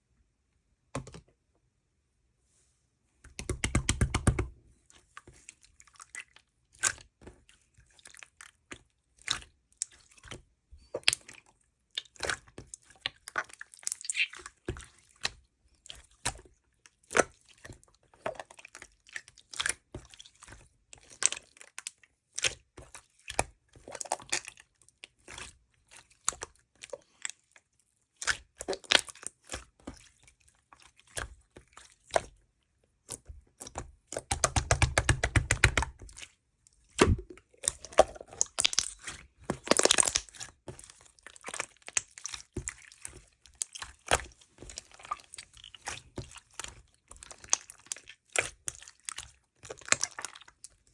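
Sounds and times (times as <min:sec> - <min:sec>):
crunching and chewing: 0:36.0 - 0:50.9.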